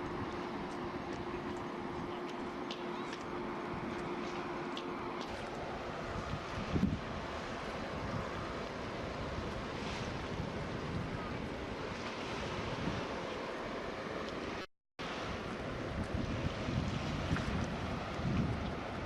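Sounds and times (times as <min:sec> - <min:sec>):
water noise: 0:00.0 - 0:19.0
wind: 0:00.0 - 0:19.0
wind buffeting microphone: 0:05.9 - 0:13.2, 0:15.2 - 0:19.0.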